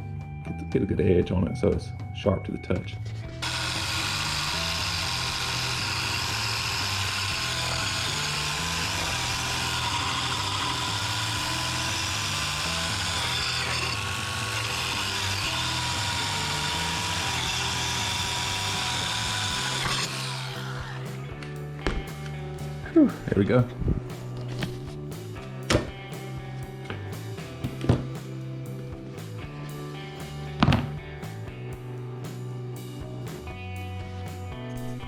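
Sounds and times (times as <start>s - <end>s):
drill sanding disc grinding steel: 3.4s - 23.4s.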